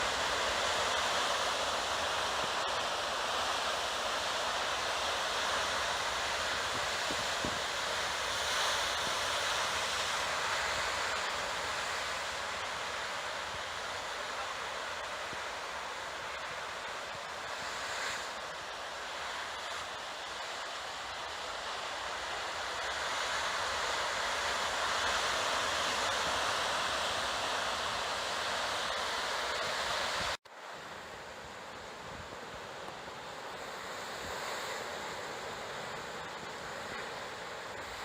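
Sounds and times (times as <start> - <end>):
wind on microphone: 6.6 - 9.2.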